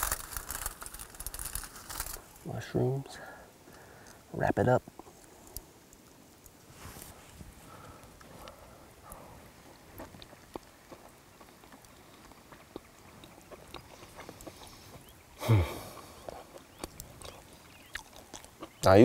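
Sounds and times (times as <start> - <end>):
man chewing food: 7.6 - 18.9.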